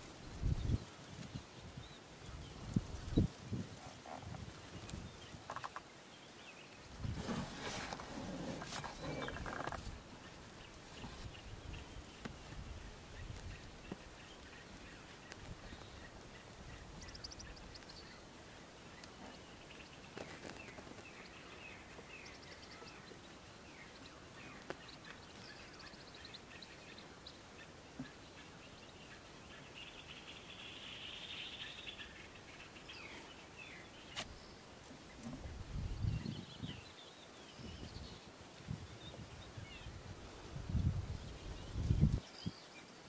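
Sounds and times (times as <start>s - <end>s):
faint bird chirps: 8.7s - 38.3s.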